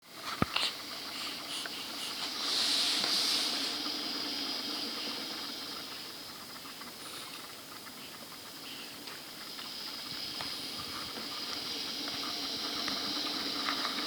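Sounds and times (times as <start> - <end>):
background hiss: 0.0 - 14.0
child's breathy hissing: 0.6 - 3.9.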